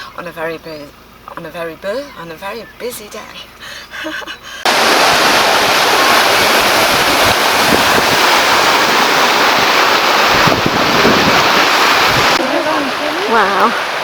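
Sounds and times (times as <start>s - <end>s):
river water rushing: 4.6s - 14.0s
wind buffeting microphone: 4.6s - 14.0s.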